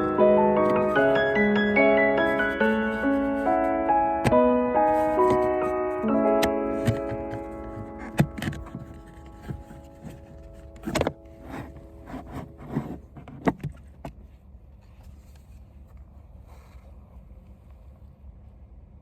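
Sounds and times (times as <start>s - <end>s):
piano notes: 0.0s - 13.1s
plastic parts clicking and knocking: 6.4s - 11.8s.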